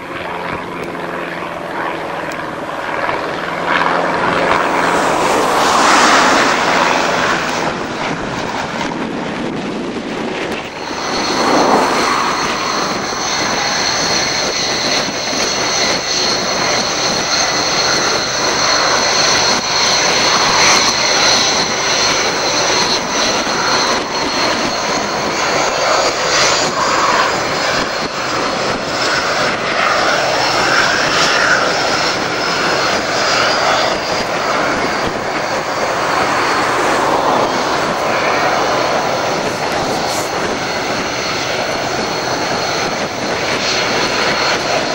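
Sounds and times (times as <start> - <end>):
aircraft engine running: 0.0 - 44.9
high-pitched whine: 0.2 - 44.9.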